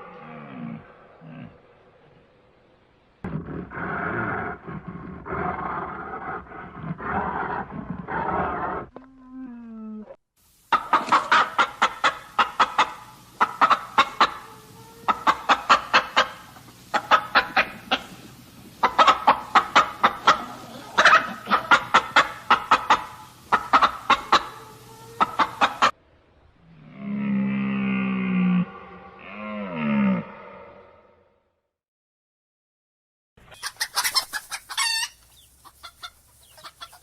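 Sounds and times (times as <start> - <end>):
chicken clucking: 10.7 - 26.0, 33.4 - 37.0.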